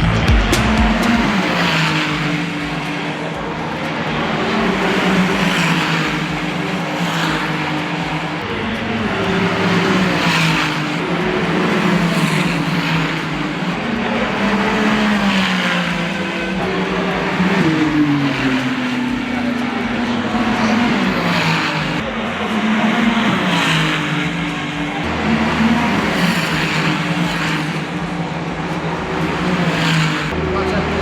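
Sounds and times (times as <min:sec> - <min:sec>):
race car engine accelerating: 0:00.0 - 0:31.0.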